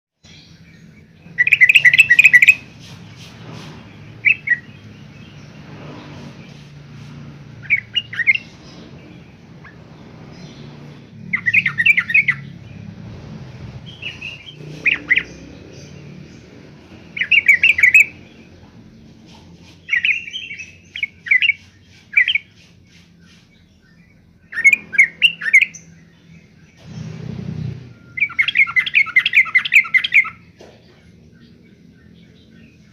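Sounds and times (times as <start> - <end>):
bird chattering song: 0.2 - 32.9.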